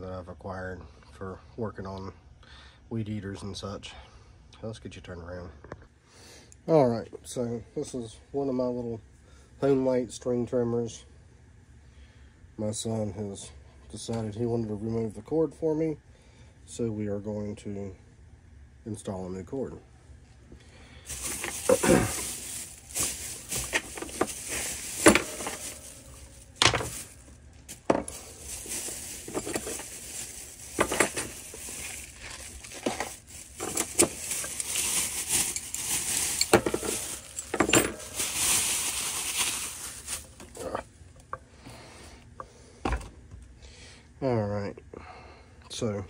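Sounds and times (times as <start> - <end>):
metal clinks and clatters: 21.1 - 27.1, 27.8 - 38.8
scraping and rustling: 21.1 - 40.9.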